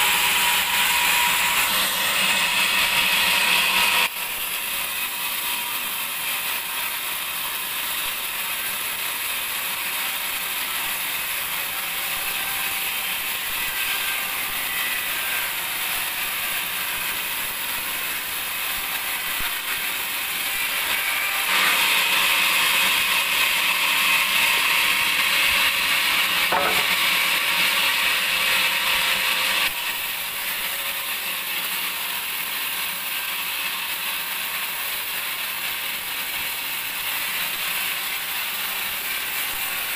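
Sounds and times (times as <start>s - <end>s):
band sawmill whirring: 0.0s - 39.9s.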